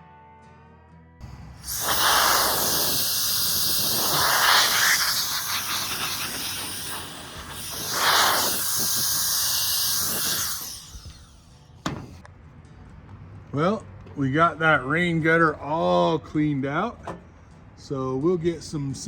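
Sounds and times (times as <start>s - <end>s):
air blowgun hissing: 1.2s - 12.2s.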